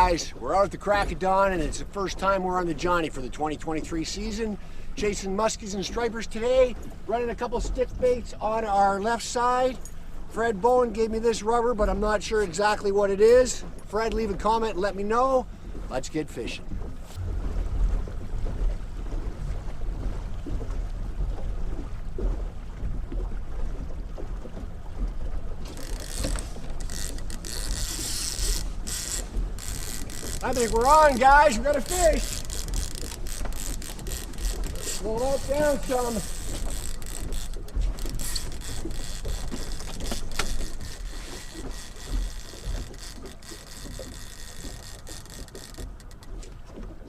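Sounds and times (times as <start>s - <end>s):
boat engine rumble: 0.0s - 47.0s
wind: 0.0s - 47.0s
low rumble: 17.0s - 21.9s
fishing reel clicker ratcheting: 25.7s - 46.3s.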